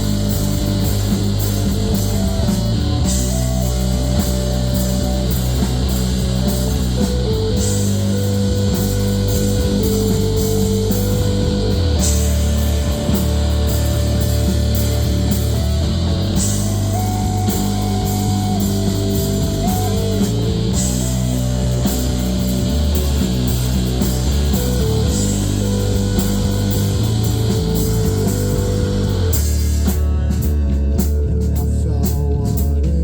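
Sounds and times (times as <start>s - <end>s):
guitar melody line: 0.0s - 32.4s
rock band playing instrumental: 0.0s - 33.0s.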